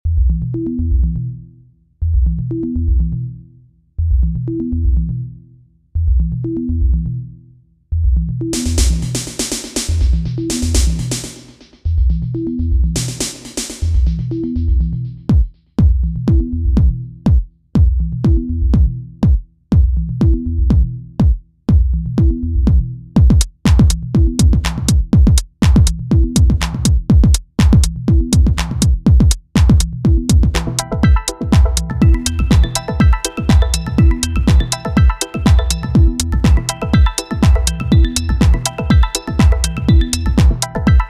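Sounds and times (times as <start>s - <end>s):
pulsing bass line: 0.0s - 41.0s
drum machine beat: 8.6s - 11.8s, 13.0s - 14.3s, 15.3s - 41.0s
electronic dance music: 23.2s - 41.0s.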